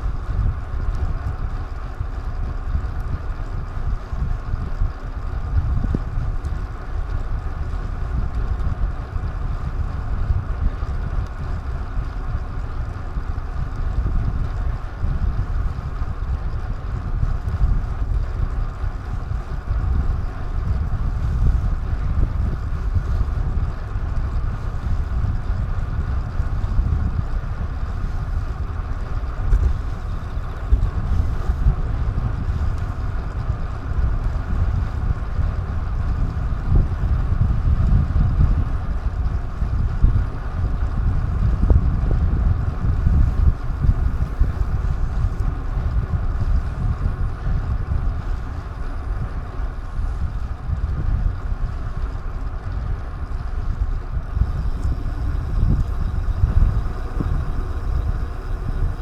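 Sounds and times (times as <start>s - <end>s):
wind buffeting microphone: 0.0s - 59.0s
road noise: 53.1s - 59.0s.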